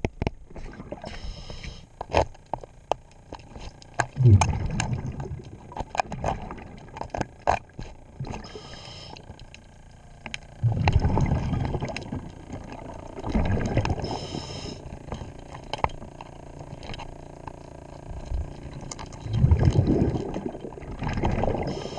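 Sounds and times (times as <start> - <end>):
exhaled bubbles underwater: 0.5 - 1.8, 4.0 - 9.5, 10.2 - 17.1, 17.7 - 21.9
regulator inhale hiss: 1.1 - 1.9, 8.4 - 9.2, 14.0 - 14.8.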